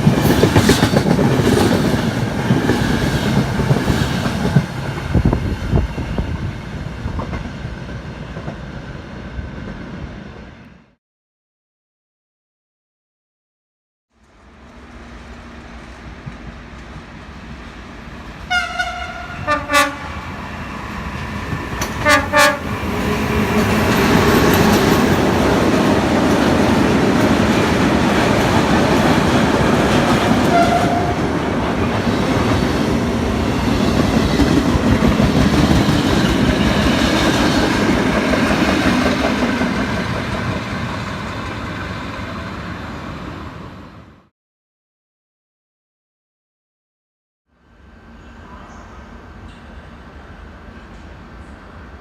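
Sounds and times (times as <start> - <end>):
train clickety-clack: 0.0 - 8.7, 20.9 - 42.5
train wheels on rails: 0.0 - 10.6, 14.2 - 43.7
train horn blasts: 18.5 - 20.3, 21.9 - 22.8, 30.4 - 31.3.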